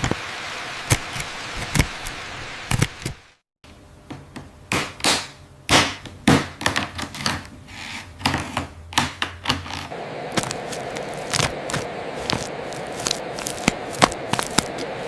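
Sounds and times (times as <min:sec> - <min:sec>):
low steady hum: 0:09.9 - 0:15.0.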